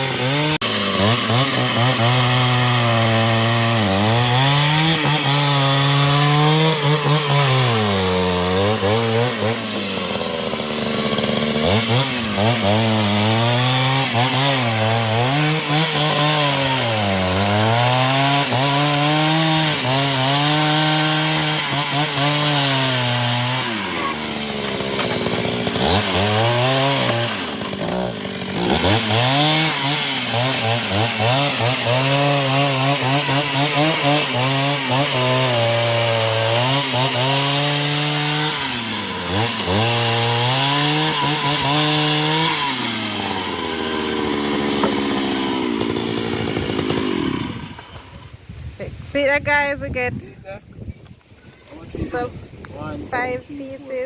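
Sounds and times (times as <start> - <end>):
chainsaw cutting wood: 0.0 - 48.5.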